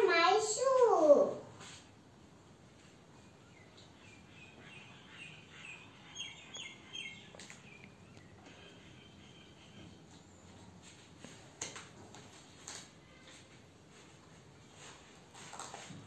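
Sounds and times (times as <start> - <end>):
small bird chirping: 3.2 - 10.4.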